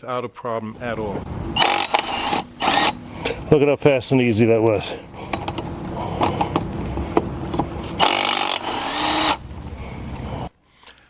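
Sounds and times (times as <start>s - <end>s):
impact wrench running: 0.8s - 10.4s
sharp metallic clicks: 1.6s - 3.1s, 5.3s - 9.4s.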